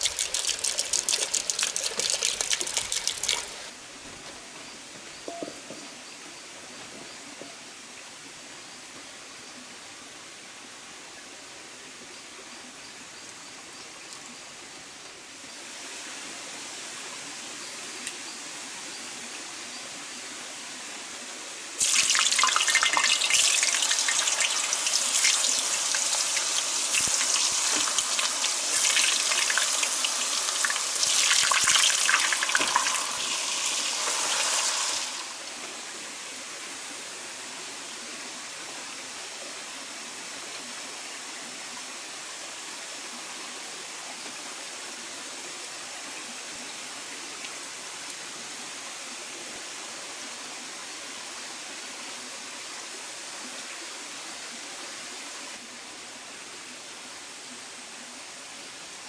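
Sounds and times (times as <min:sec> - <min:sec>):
water pouring and splashing: 0:00.0 - 0:04.2, 0:21.8 - 0:36.0
steady hiss: 0:21.7 - 0:38.0.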